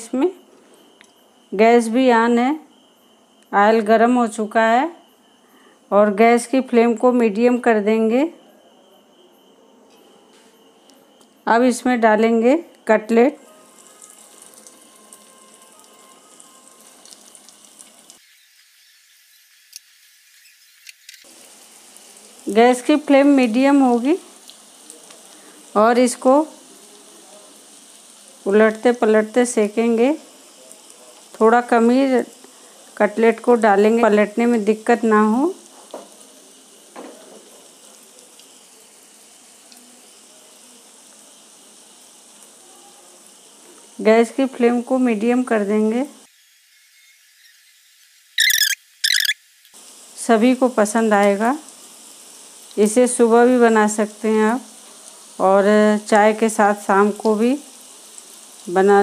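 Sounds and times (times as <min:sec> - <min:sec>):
cutlets sizzling in oil: 0:10.0 - 0:59.0
small ticks: 0:47.6 - 0:49.8.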